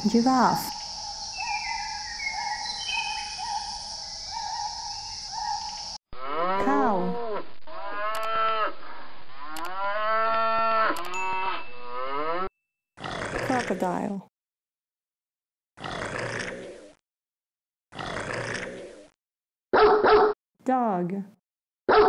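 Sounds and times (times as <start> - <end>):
cattle mooing: 6.2 - 8.8, 9.4 - 13.7
high chirping notes: 11.0 - 12.5.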